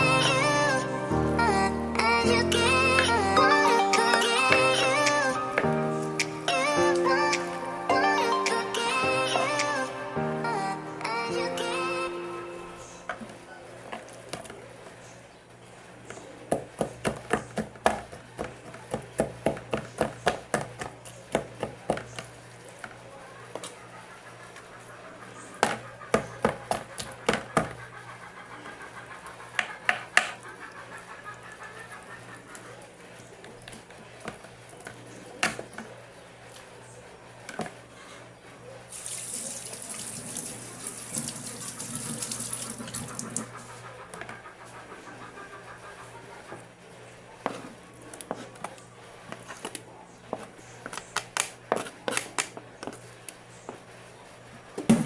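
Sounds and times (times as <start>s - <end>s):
tap water running into sink: 38.9s - 43.5s.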